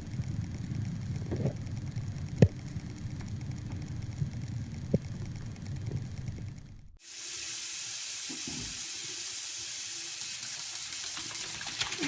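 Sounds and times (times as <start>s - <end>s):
faint low hum: 0.0s - 7.0s
steady hiss: 7.0s - 12.0s.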